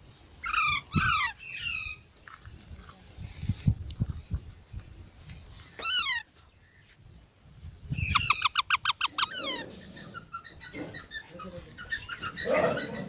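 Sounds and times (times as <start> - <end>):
parrot squawking: 5.8 - 6.2, 8.1 - 9.7.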